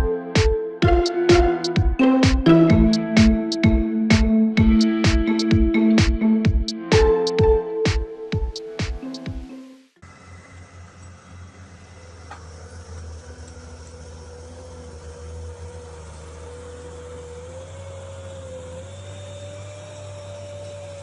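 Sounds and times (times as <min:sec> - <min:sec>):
vehicle engine rumbling: 0:10.0 - 0:21.0.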